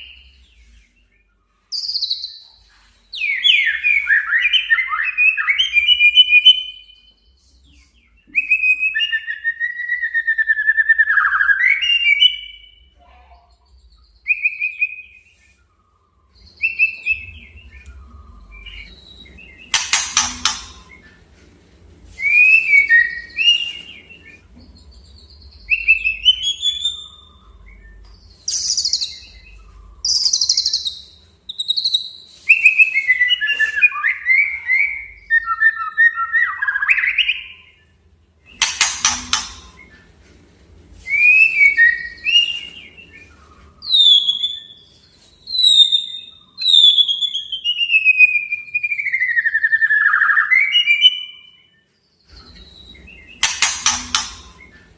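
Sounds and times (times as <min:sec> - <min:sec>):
songbird whistled song: 0:00.0 - 0:54.9
harsh scratchy bird notes: 0:16.6 - 0:24.5, 0:38.5 - 0:44.0, 0:52.3 - 0:54.9.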